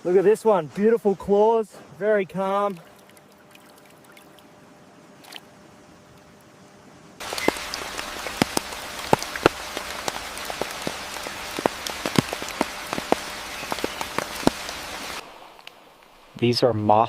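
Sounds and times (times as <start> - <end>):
steady rain: 6.6 - 17.0
heavy raindrops tapping: 7.2 - 16.2.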